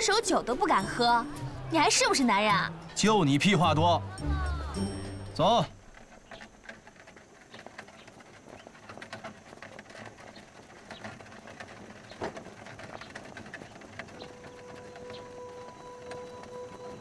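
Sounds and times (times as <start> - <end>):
light footsteps: 0.0 - 17.0
bird chirps: 12.9 - 17.0.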